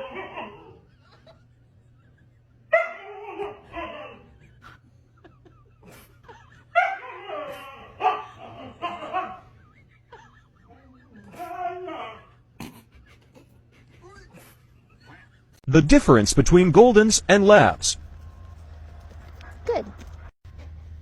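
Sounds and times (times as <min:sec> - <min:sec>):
dog howling: 0:00.0 - 0:01.1, 0:02.7 - 0:04.6, 0:06.6 - 0:09.6, 0:10.7 - 0:12.5.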